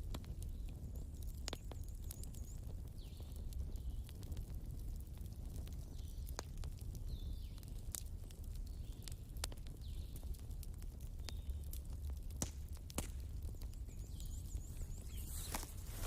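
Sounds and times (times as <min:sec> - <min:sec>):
wood fire crackling: 0:00.0 - 0:16.0
high falling chirping calls: 0:13.9 - 0:16.0.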